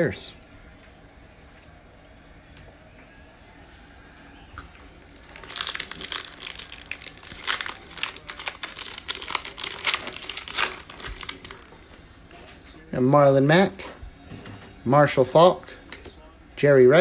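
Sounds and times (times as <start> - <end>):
wrapper tearing and crinkling: 5.0 - 12.0.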